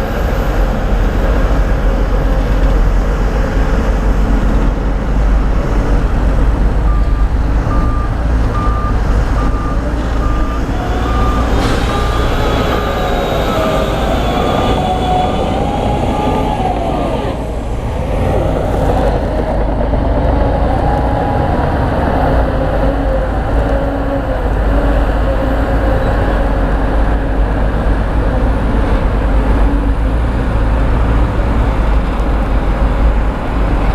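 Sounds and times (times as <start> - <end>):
diesel machinery engine: 0.0 - 33.9
reversing alarm beeping: 5.4 - 16.9.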